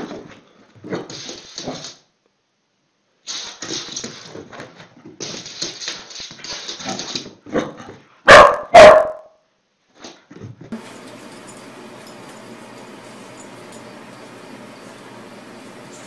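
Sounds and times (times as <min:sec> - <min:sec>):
dog barking: 0:08.2 - 0:09.4.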